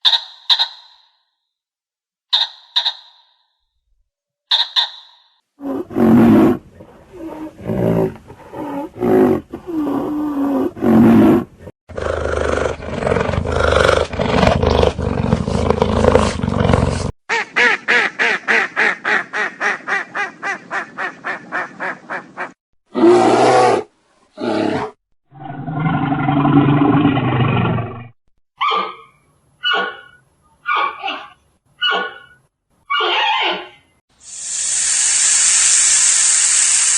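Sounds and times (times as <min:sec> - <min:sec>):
animal roaring and growling: 0:05.6 - 0:17.1, 0:22.9 - 0:28.2.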